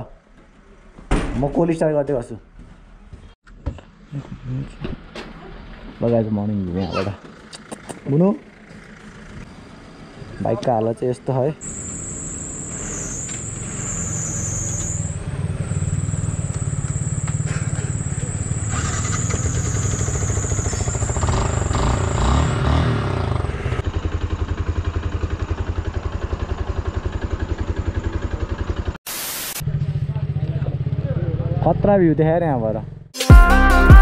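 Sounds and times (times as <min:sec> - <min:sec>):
motorcycle engine idling: 0:07.2 - 0:10.3, 0:11.6 - 0:29.0, 0:29.6 - 0:32.2.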